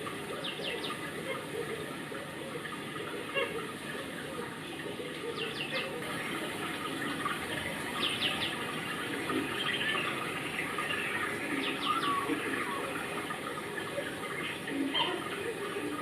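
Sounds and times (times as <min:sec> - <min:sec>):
faint voices: 0:00.0 - 0:16.0
rushing water background: 0:00.0 - 0:16.0.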